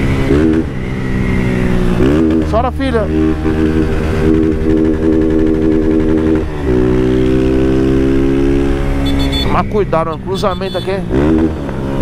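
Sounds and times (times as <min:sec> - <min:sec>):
motorcycle engine running hard: 0:00.0 - 0:12.0.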